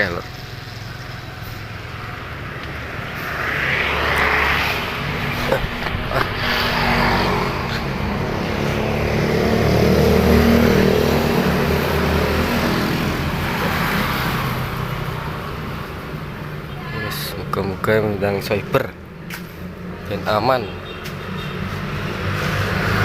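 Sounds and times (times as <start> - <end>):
vehicle engine passing: 0.0 - 17.9.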